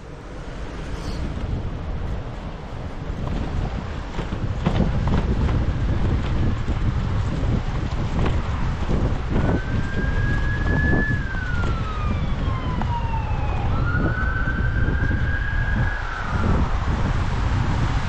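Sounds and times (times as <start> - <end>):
wind noise on microphone: 0.0 - 18.0
siren wailing: 9.3 - 17.1.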